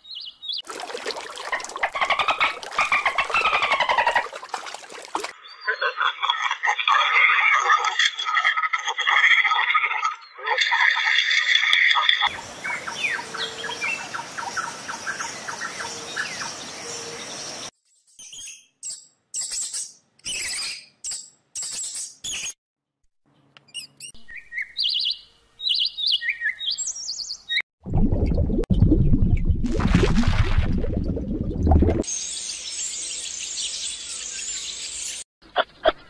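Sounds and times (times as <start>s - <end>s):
chirps: 5.4s - 6.4s, 23.4s - 27.6s.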